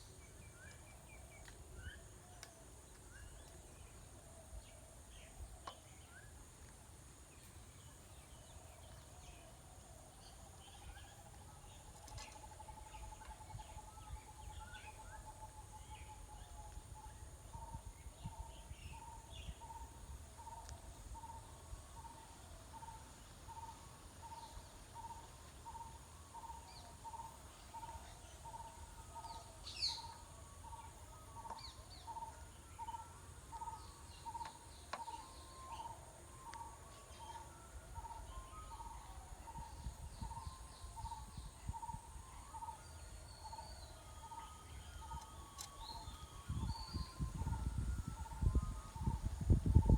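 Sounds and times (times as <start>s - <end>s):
birds chirping: 24.3s - 49.9s.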